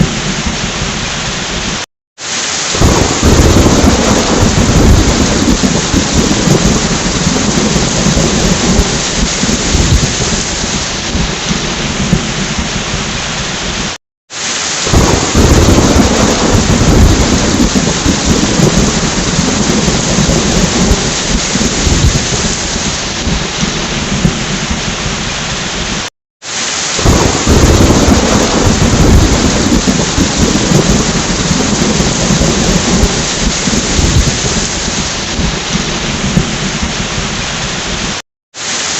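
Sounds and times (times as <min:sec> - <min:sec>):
heavy rain: 0:00.0 - 0:38.9
rolling thunder: 0:02.8 - 0:13.8, 0:14.9 - 0:25.6, 0:27.0 - 0:38.2.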